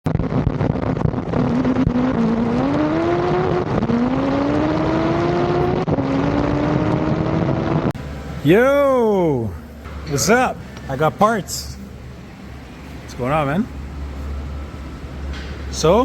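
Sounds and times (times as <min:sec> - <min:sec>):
drag car engine at full throttle: 0:00.1 - 0:09.9.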